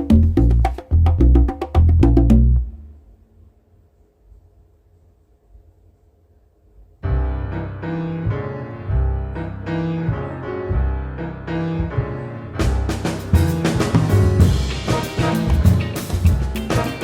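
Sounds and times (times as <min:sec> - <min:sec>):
drum beat: 0:00.0 - 0:02.7, 0:11.8 - 0:17.0
bass line: 0:00.0 - 0:02.9, 0:08.3 - 0:17.0
keyboard chords: 0:07.0 - 0:17.0.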